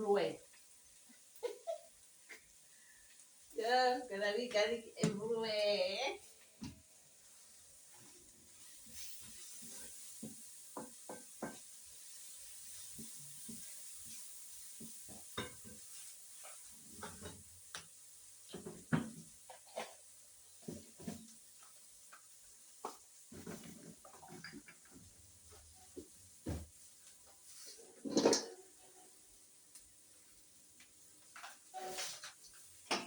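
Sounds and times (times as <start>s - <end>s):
utensils and dishes clinking: 28.0s - 28.7s.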